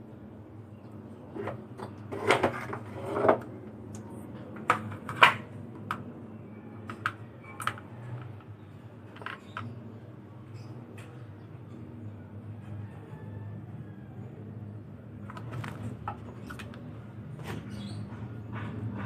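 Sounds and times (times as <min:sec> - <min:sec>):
hard objects clicking and knocking: 0:06.8 - 0:09.8.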